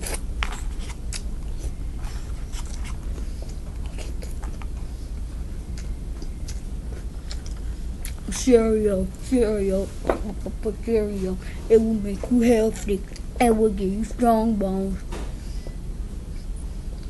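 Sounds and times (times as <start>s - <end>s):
chewing crunchy cereal: 0.0s - 4.8s, 5.7s - 8.5s
steady low hum: 0.0s - 17.0s.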